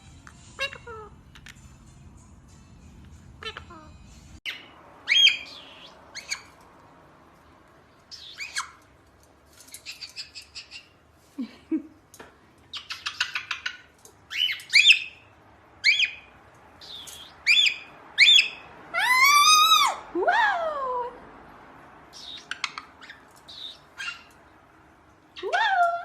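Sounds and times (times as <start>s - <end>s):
pet bird chirping and calling: 0.5s - 1.7s, 3.4s - 6.6s, 8.1s - 8.9s, 9.7s - 11.0s, 12.7s - 20.0s, 22.2s - 24.4s.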